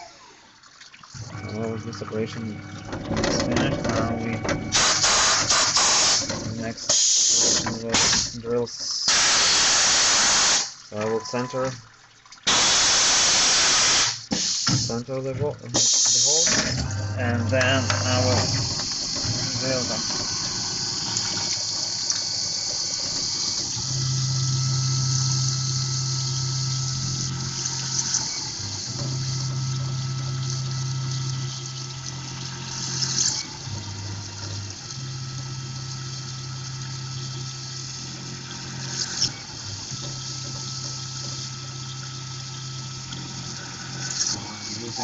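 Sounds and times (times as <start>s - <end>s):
low machine hum: 0.0s - 9.1s, 10.8s - 12.4s, 14.8s - 45.0s
short sharp machine noise: 1.2s - 8.3s
cnc mill drilling aluminium: 1.4s - 8.3s, 9.1s - 11.5s, 15.8s - 45.0s
coolant spray hissing: 4.7s - 10.8s, 12.4s - 15.0s, 15.7s - 16.5s, 17.6s - 23.9s.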